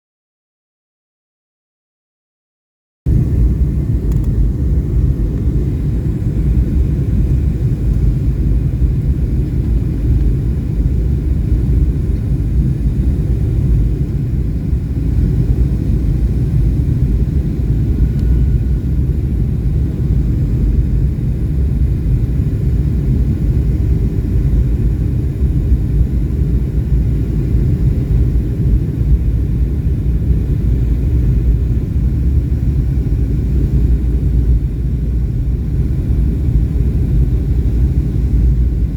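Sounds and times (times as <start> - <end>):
airflow noise: 3.1 - 23.0
jet engine drone in cabin: 3.1 - 38.9.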